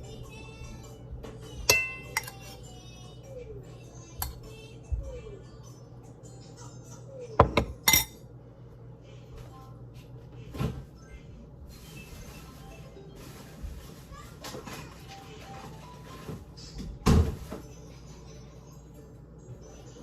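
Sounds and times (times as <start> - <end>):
quiet background music: 0.0 - 20.0
dishes and cutlery clinking: 1.6 - 2.6, 7.4 - 8.2.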